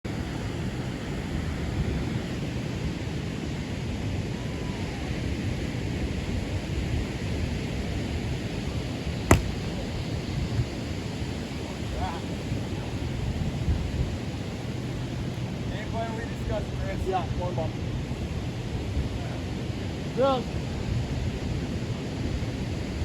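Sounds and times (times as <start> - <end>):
sharp crack: 9.3 - 9.9
wind noise on microphone: 11.8 - 15.8.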